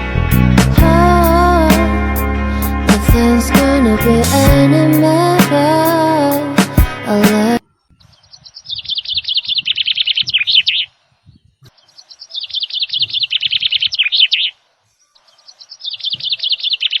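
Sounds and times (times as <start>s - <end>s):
songbird chirping song: 7.1s - 17.0s.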